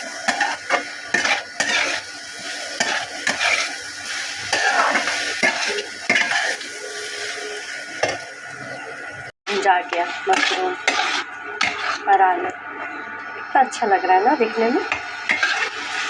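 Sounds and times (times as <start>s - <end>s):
food sizzling in a pan: 0.0s - 16.0s
spoon scraping a pan: 0.3s - 2.0s, 2.7s - 3.8s, 4.5s - 7.4s, 9.8s - 12.2s, 14.9s - 16.0s.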